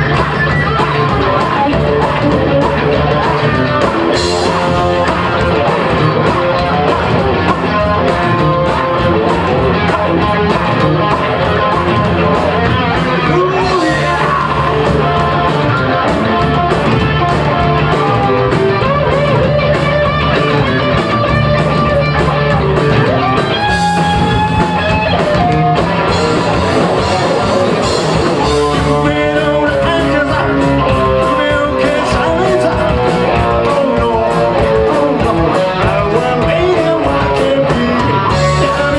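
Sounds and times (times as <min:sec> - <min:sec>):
bass guitar: 0:00.0 - 0:38.9
drums: 0:00.0 - 0:38.9
electric guitars: 0:00.0 - 0:38.9
person singing: 0:00.8 - 0:19.2, 0:22.2 - 0:38.9.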